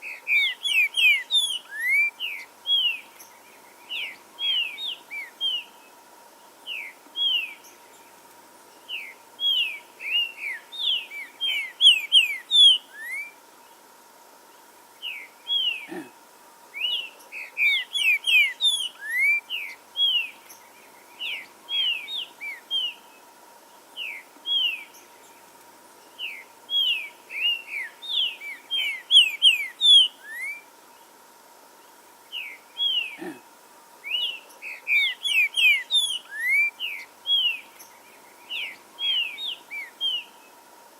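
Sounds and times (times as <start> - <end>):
bird singing whistled notes: 0.0 - 3.1, 3.8 - 5.8, 6.6 - 8.0, 8.9 - 13.4, 15.0 - 15.9, 16.8 - 23.1, 24.0 - 25.4, 26.2 - 30.7, 34.0 - 40.5.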